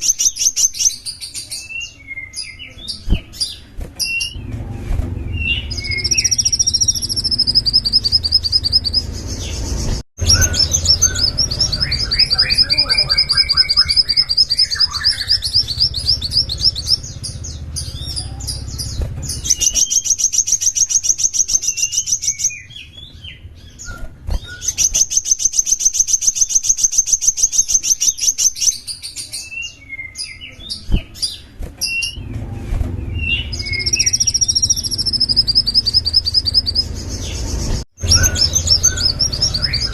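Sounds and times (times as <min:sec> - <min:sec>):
songbird trilling: 0:05.3 - 0:23.8, 0:33.2 - 0:37.4, 0:38.0 - 0:39.9
bird chattering: 0:05.5 - 0:22.6.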